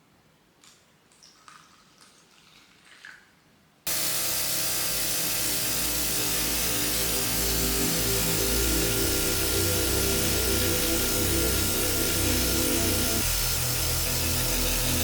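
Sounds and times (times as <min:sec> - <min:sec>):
motor hum: 0:03.9 - 0:15.0
pressure washer spraying water: 0:03.9 - 0:15.0.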